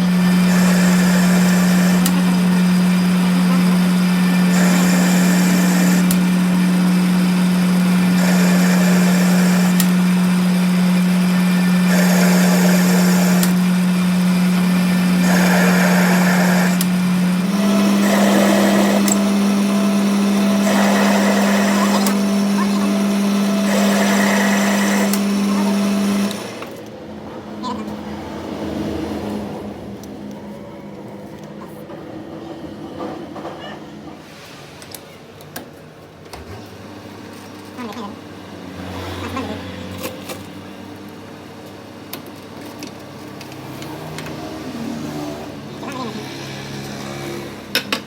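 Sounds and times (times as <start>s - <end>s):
electric motor humming: 0.0s - 26.9s
metal cutting scraping: 0.0s - 26.9s.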